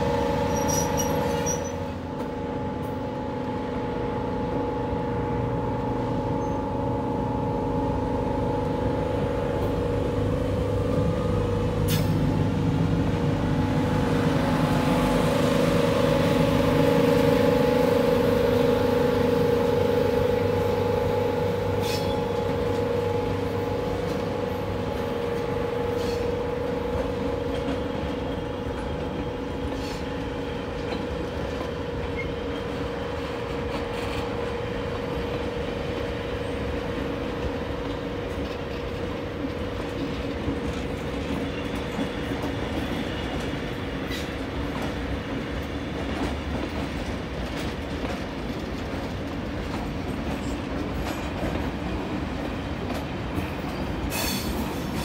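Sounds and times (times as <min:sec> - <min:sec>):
train wheels clicking over rail joints: 0:00.4 - 0:03.0, 0:21.7 - 0:55.0.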